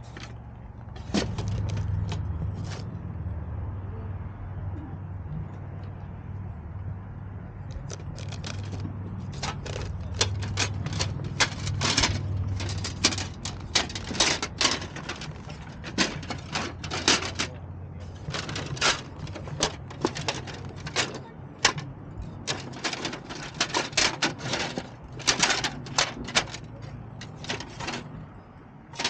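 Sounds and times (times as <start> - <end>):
sharp clicks and crackles: 7.6 - 28.1.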